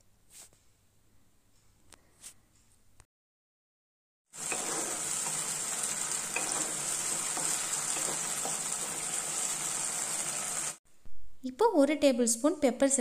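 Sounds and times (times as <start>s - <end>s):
spatula tapping pan: 4.4s - 9.7s
vegetables sizzling in oil: 4.4s - 10.8s
wooden spatula stirring: 4.4s - 10.8s.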